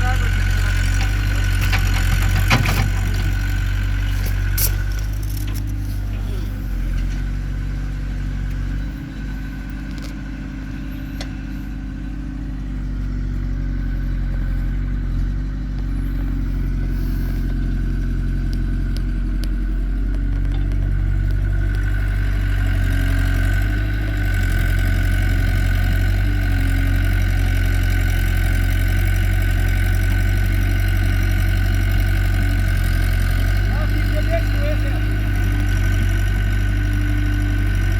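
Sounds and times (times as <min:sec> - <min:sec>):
heavy diesel engine running: 0:00.0 - 0:37.9
thin steady whine: 0:02.9 - 0:22.7.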